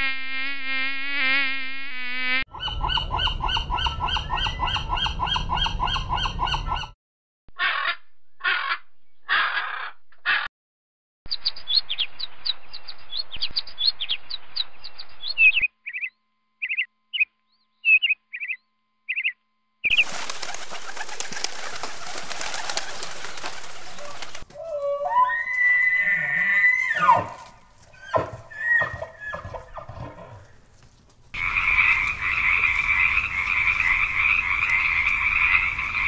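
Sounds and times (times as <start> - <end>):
high bird chirps: 11.3 - 20.0
elk bugling: 23.1 - 30.6.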